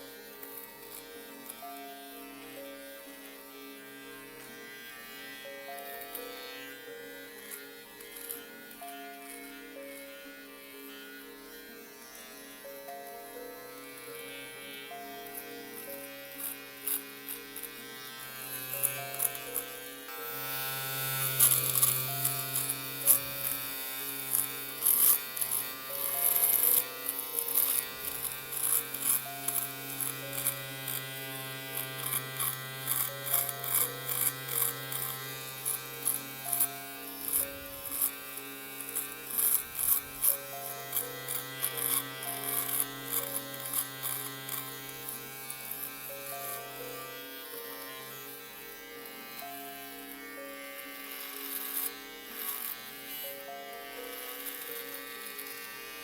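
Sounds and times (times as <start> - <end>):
electric shaver buzzing: 0.0 - 56.0
shaver crackling through stubble: 13.8 - 55.8.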